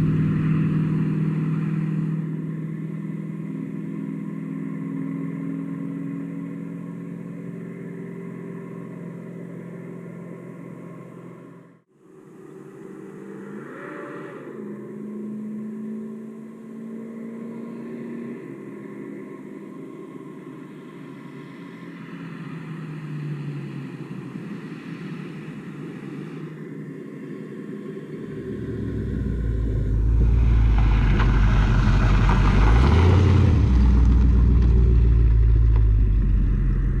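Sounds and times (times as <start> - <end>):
truck vfour exhaust rumble: 0.0 - 11.8, 28.3 - 37.0.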